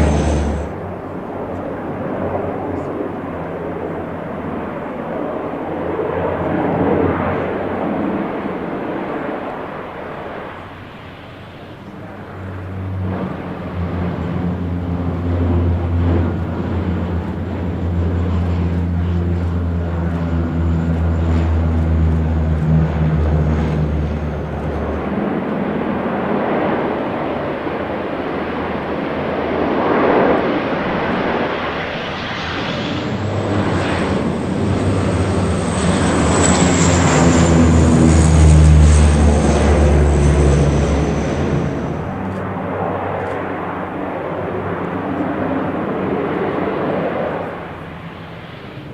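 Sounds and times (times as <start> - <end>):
rushing noise: 0.0 - 1.1
high turbine whine: 0.0 - 1.6, 30.9 - 44.6
turboprop engines droning: 0.0 - 48.9.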